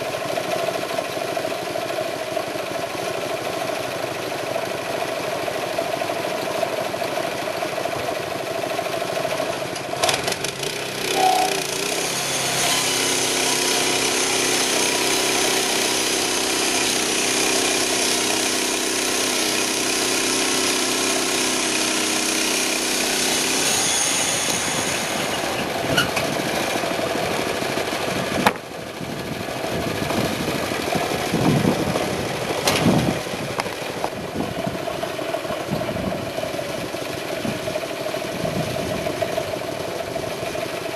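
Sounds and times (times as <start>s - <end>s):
sawmill engine running: 0.0s - 40.9s
band blade sawing log: 10.0s - 26.9s.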